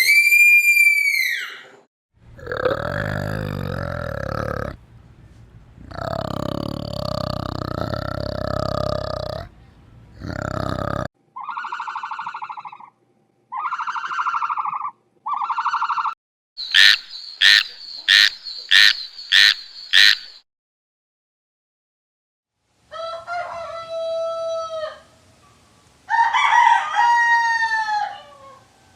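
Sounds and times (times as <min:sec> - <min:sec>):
toad croaking trills: 0:02.4 - 0:04.8, 0:05.8 - 0:09.5, 0:10.2 - 0:12.9, 0:16.6 - 0:20.4
louder animal call: 0:13.5 - 0:20.3
sharp calls: 0:16.6 - 0:20.4.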